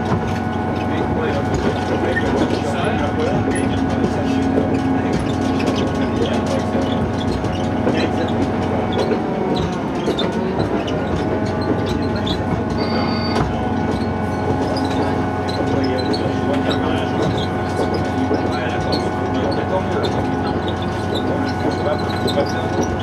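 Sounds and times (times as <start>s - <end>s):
diesel train running: 0.0s - 23.0s
short high squeal: 12.8s - 13.4s.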